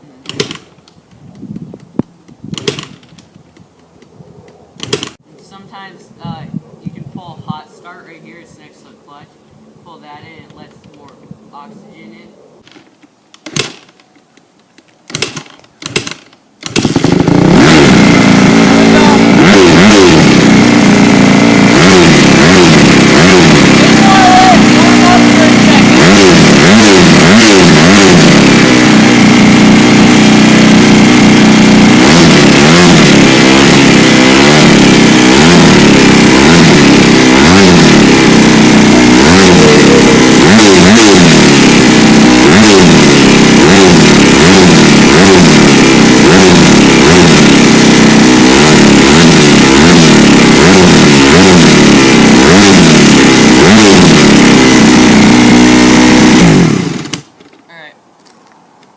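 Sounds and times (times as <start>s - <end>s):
dirt bike engine revving: 15.1s - 57.3s.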